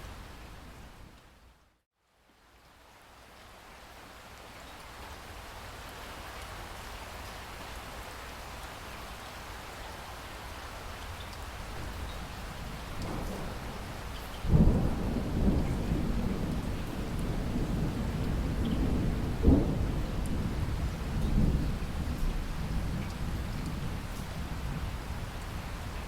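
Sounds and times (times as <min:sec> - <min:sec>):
steady rain: 0:00.0 - 0:26.0
thunderclap rumbling: 0:12.6 - 0:25.9.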